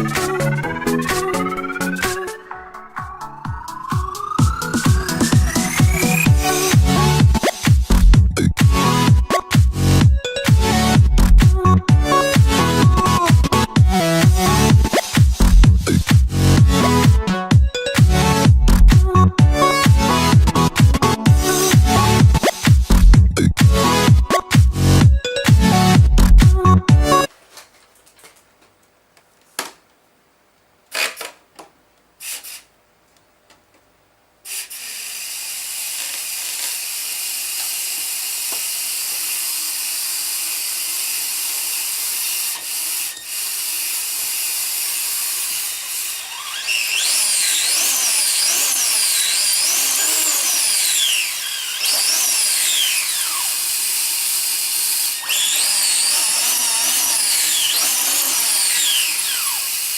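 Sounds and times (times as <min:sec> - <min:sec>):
power tool whining: 0:03.2 - 0:07.7, 0:34.5 - 0:59.9.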